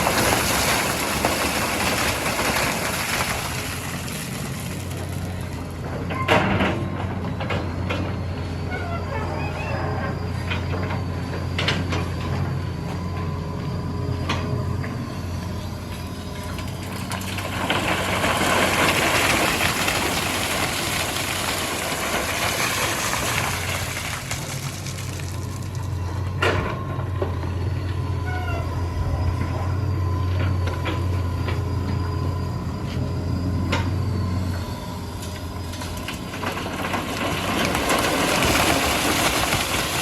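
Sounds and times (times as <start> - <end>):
diesel engine droning: 0.0 - 40.0
hydraulic whine: 0.0 - 40.0.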